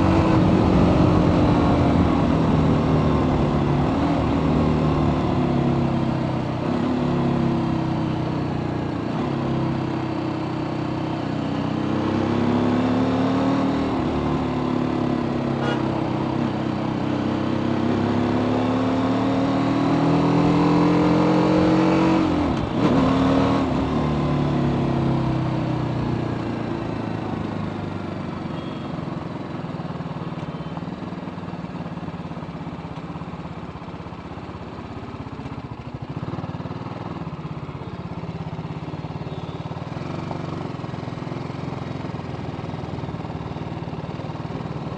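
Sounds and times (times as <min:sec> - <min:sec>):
motorcycle engine revving: 0:09.0 - 0:28.8.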